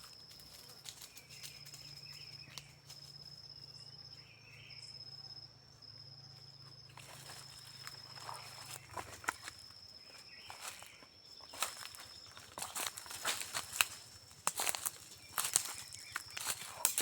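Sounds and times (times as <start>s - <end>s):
insect trilling: 0.0s - 17.0s.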